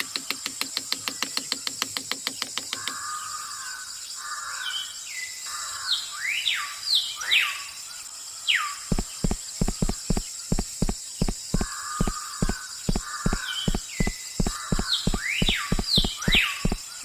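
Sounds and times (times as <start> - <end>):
bird-like chirps: 0.0 - 3.8, 4.6 - 17.0
fast even ticking: 8.9 - 16.8
regular low thumps: 8.9 - 16.9.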